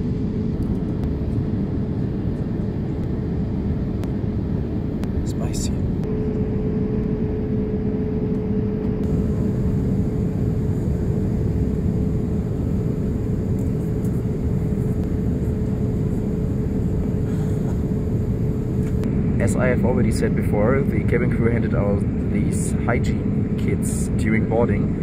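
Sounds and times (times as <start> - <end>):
airliner cabin noise: 0.0 - 25.0
steady tone: 5.0 - 20.1.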